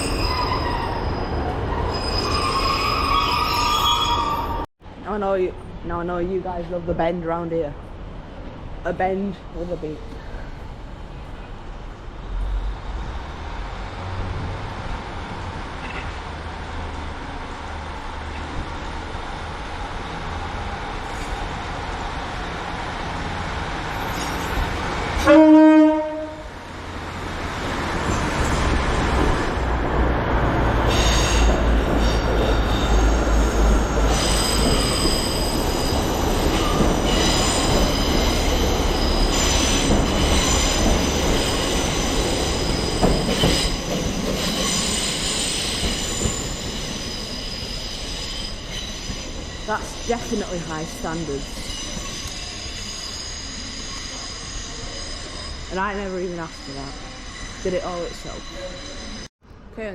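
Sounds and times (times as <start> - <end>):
wheel squeal: 0.0 - 4.7, 51.5 - 59.3
train approaching: 7.7 - 59.7
train horn blast: 25.2 - 26.6.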